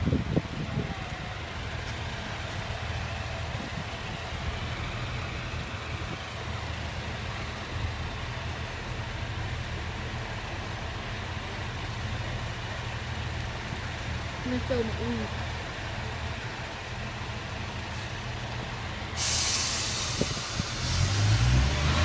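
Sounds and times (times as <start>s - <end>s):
train diesel engine idling: 0.0s - 21.3s.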